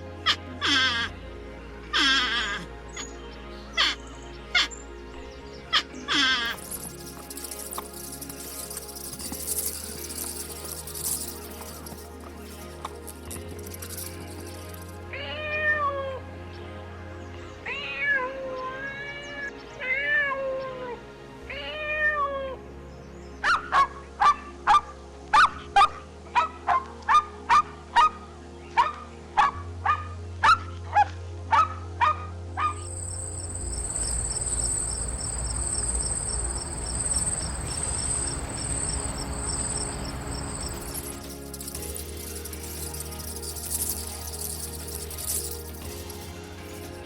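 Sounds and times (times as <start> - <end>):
crickets chirping: 6.5 - 15.0, 32.8 - 47.0.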